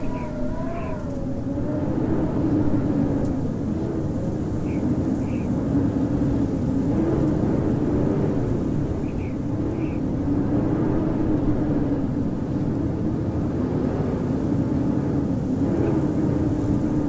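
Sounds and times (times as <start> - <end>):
howling storm wind: 0.0 - 17.0.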